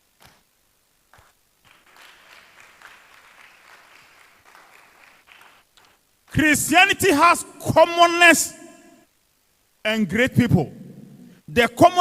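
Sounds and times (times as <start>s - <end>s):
faint applause: 1.6s - 6.0s.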